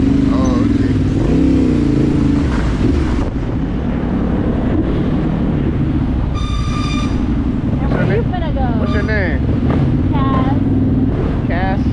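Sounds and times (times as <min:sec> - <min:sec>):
wind rushing over microphone: 0:00.9 - 0:08.8
high-pitched beep: 0:06.4 - 0:07.3.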